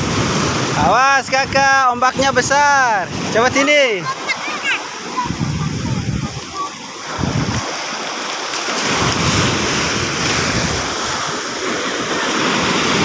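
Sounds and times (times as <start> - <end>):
sea waves breaking on shore: 0.0 - 13.0
wind buffeting microphone: 4.9 - 7.8, 8.9 - 13.0.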